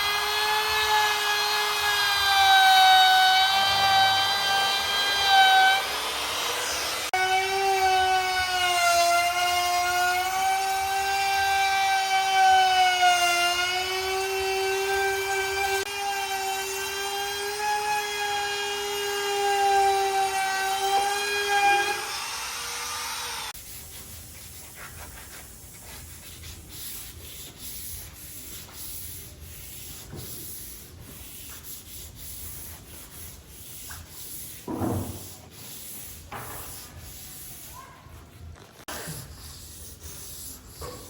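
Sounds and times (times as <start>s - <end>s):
rubbing and scraping on wood: 23.5s - 41.0s.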